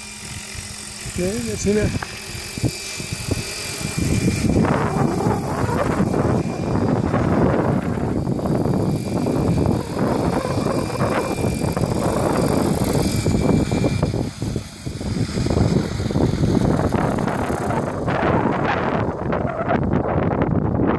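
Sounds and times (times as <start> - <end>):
rc helicopter motor whine: 0.0 - 20.9
wind buffeting on microphone: 0.0 - 20.9.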